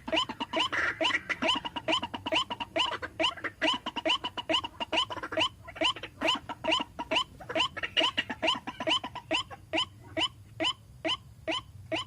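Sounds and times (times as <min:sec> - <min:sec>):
waterhen calling rising notes: 0:00.0 - 0:12.0.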